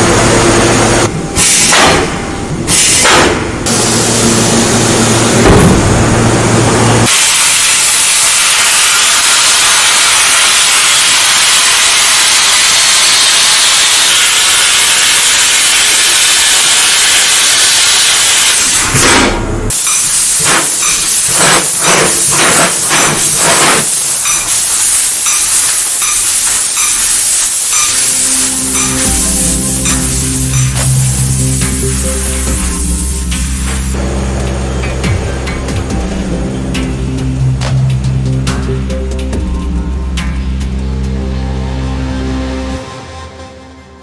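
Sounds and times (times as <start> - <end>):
laser cutter gas hissing: 7.0 - 19.0, 19.7 - 34.0.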